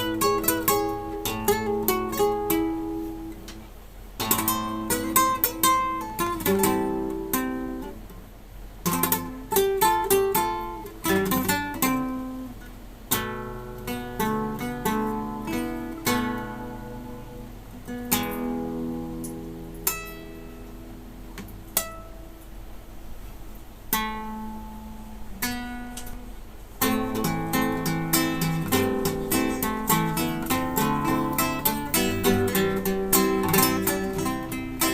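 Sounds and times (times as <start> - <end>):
classical guitar fingerstyle: 0.0 - 22.6, 23.6 - 34.9.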